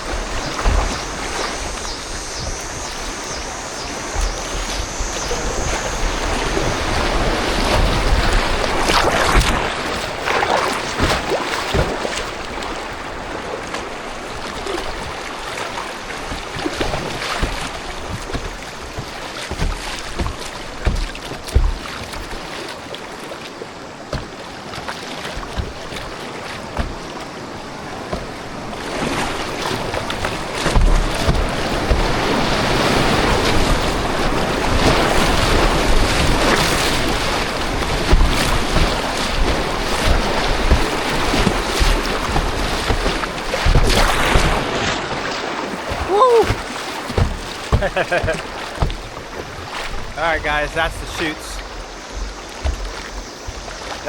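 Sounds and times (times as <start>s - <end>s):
wind buffeting microphone: 0.0s - 10.2s, 25.4s - 44.8s
water rushing and splashing: 0.0s - 54.0s.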